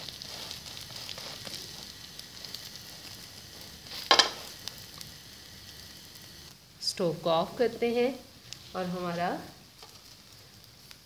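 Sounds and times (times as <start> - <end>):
bread sizzling in a frying pan: 0.0 - 11.0.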